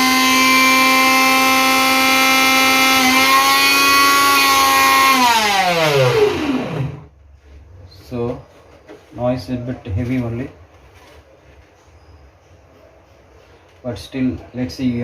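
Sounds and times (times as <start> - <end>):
mixer grinder motor whine: 0.0 - 7.1.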